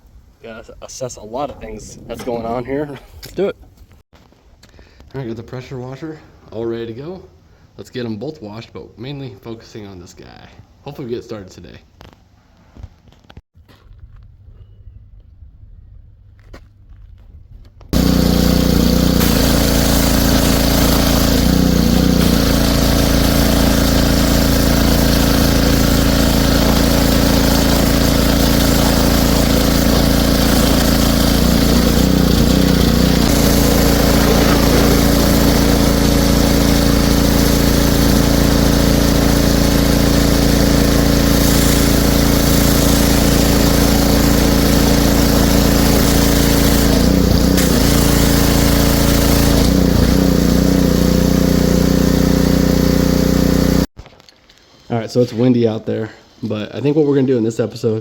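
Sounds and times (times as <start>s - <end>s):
pressure washer running: 18.0s - 53.9s.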